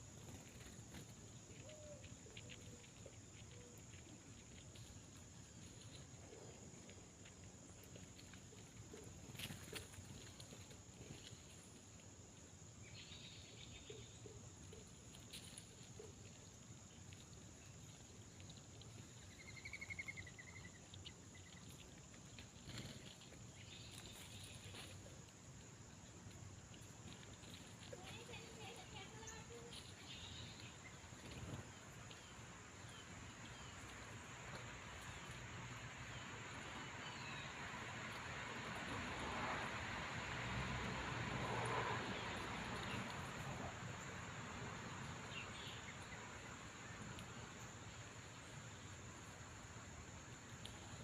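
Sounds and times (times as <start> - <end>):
faint chirping call: 19.2 - 21.6.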